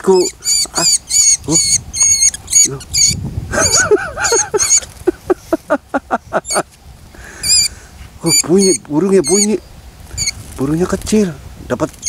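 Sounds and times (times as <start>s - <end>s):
bird squeaking shrilly: 0.0s - 5.0s, 6.4s - 6.7s, 7.3s - 10.4s
lower arching bird sounds: 0.0s - 12.0s.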